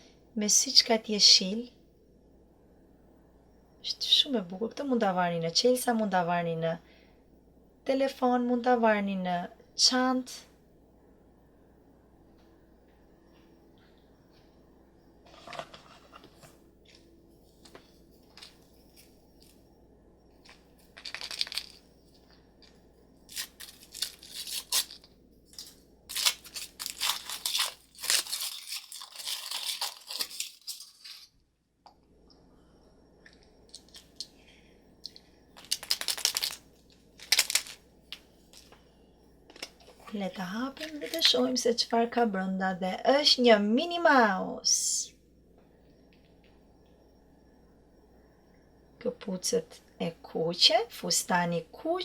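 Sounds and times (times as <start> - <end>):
wrapper tearing and crinkling: 21.0 - 21.8, 23.3 - 31.3, 35.6 - 36.6, 37.2 - 37.8.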